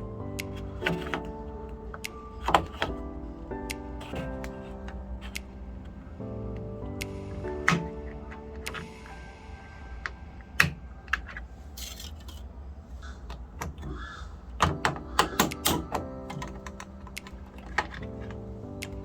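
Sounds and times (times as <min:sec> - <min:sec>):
sharp clicks and light knocks: 0:13.3 - 0:19.0.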